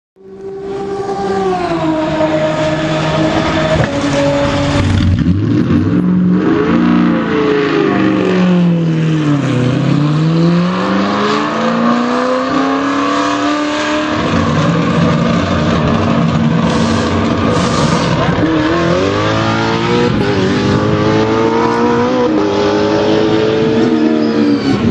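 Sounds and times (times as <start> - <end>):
race car engine revving: 0.2 - 24.9.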